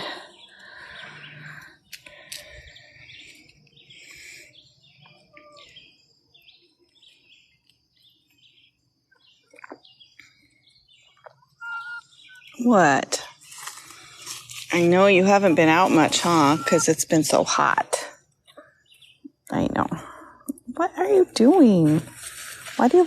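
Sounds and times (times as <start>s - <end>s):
hens chirping and clucking: 3.0s - 12.8s, 13.5s - 17.3s.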